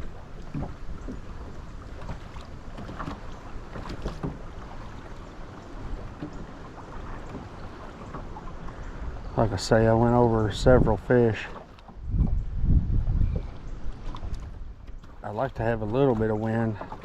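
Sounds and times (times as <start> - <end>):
water splashes: 0.0 - 17.0
knocks on boat: 2.8 - 4.5
wind buffeting microphone: 5.7 - 17.0.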